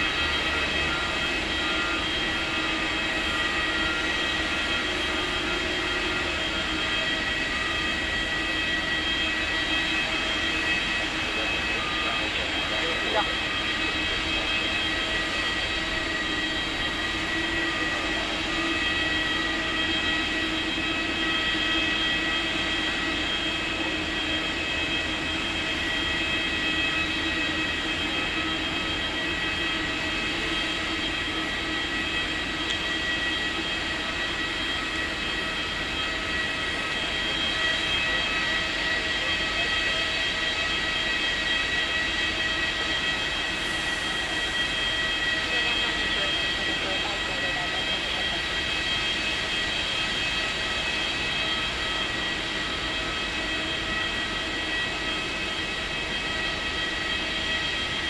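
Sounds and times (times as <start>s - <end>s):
aircraft turbines idling: 0.0s - 58.0s.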